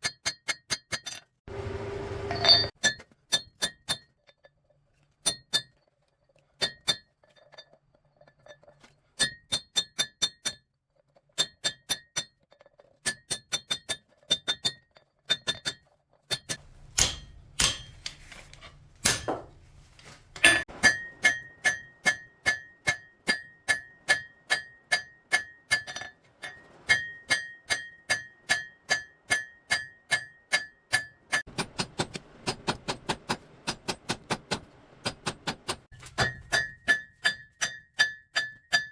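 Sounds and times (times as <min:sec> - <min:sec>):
hammer ringing on anvil: 0:02.3 - 0:02.7, 0:16.6 - 0:18.0, 0:20.4 - 0:31.4.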